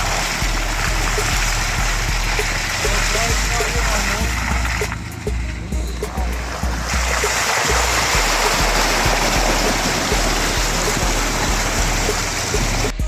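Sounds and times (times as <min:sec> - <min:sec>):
music with bass beat: 0:00.0 - 0:13.0
rushing river water: 0:00.0 - 0:13.0.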